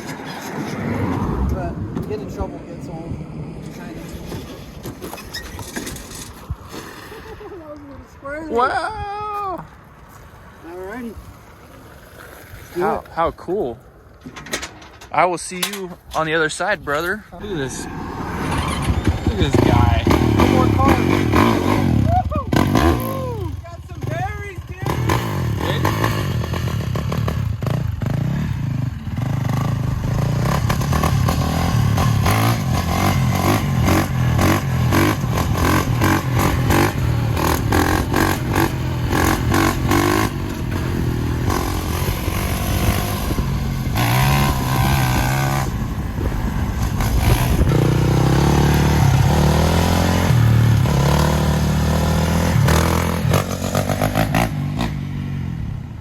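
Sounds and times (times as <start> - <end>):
wind buffeting microphone: 16.0 - 22.1, 33.7 - 49.4
dirt bike engine accelerating: 17.4 - 55.9.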